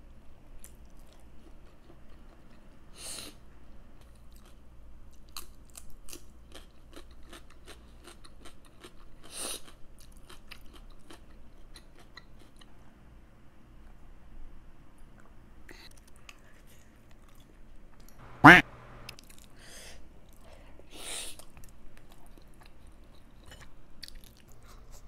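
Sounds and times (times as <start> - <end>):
person chewing food: 0.6 - 2.9, 4.0 - 12.7, 21.4 - 25.0
loud bites: 18.2 - 19.2.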